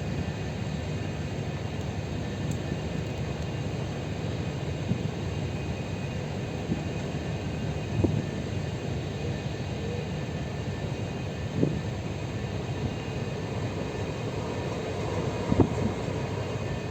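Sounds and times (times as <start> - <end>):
ship engine low rumble: 0.0 - 16.9.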